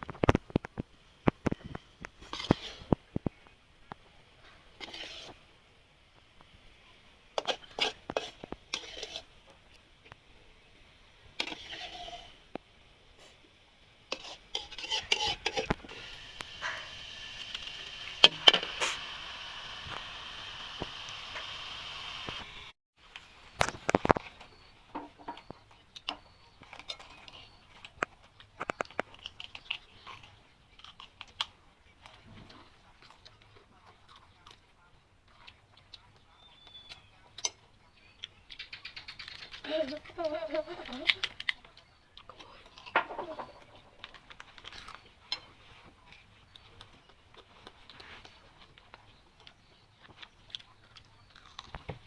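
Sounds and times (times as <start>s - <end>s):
person chewing crunchy food: 14.1s - 22.7s, 25.4s - 37.6s, 44.1s - 52.0s
brief scraping: 17.6s - 19.2s.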